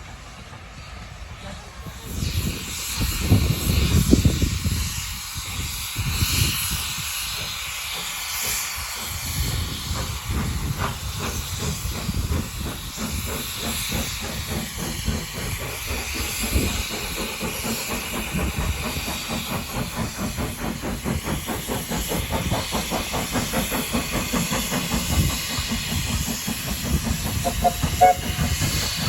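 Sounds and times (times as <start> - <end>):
steam locomotive hissing: 0.0 - 29.0
quick regular chuffing beat: 10.0 - 29.0.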